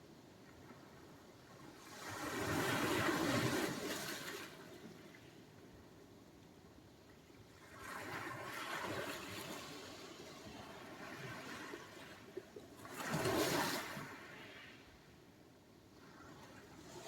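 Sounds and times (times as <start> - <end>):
waves washing onto shore: 1.8 - 5.1, 7.6 - 14.9.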